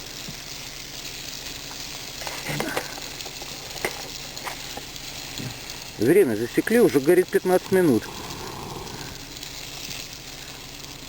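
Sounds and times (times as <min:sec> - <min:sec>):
seeds sizzling in frying pan: 0:00.0 - 0:11.0
light stirring clicks: 0:01.7 - 0:06.7.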